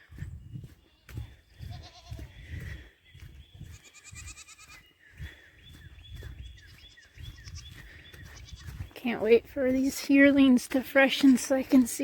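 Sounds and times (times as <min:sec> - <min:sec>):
goats bleating: 0:00.9 - 0:02.5, 0:03.7 - 0:04.8.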